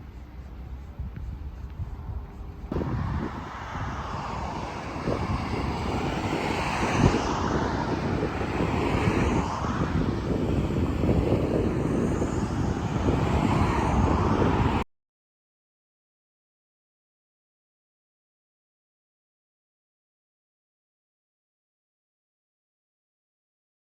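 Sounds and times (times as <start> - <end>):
aircraft engine passing overhead: 0.0 - 14.8.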